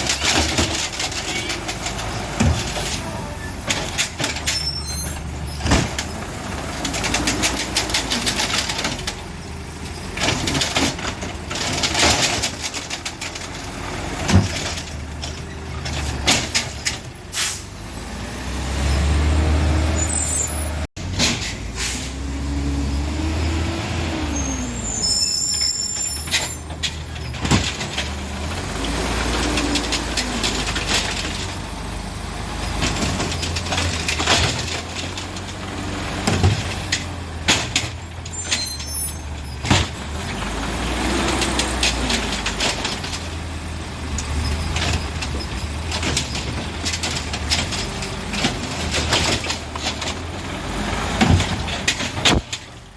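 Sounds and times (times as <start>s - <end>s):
garbage truck engine revving: 0.0s - 52.8s
air brakes hissing: 17.3s - 17.8s, 20.1s - 22.3s.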